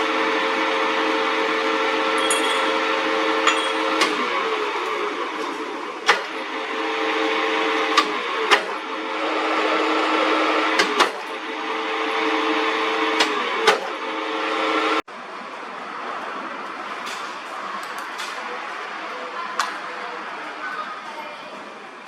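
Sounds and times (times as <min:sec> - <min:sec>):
metal lathe running: 0:02.2 - 0:14.4.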